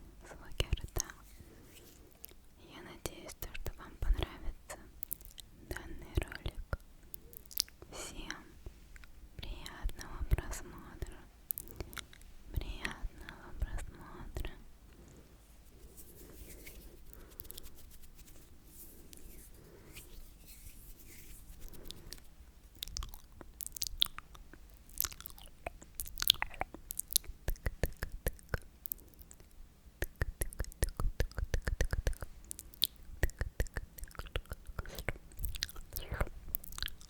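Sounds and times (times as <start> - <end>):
wet mouth clicks and smacks: 5.0 - 5.5, 6.3 - 7.9, 11.5 - 12.3, 21.6 - 37.0.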